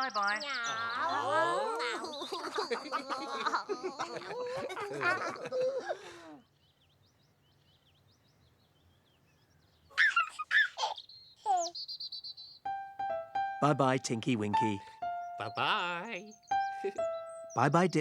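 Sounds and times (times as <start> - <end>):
faint birdsong chirps: 0.0 - 18.0
high cartoon voices giggling: 0.7 - 6.4.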